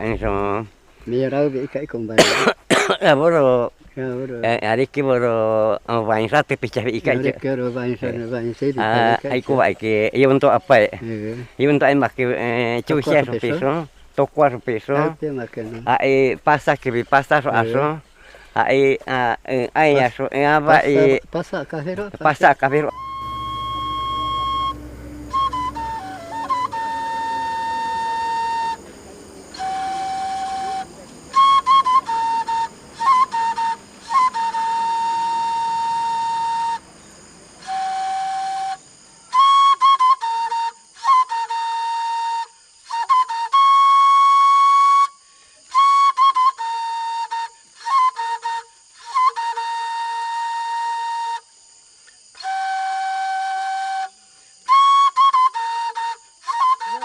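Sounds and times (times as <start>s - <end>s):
solo flute melody: 22.8s - 51.7s, 52.3s - 57.0s.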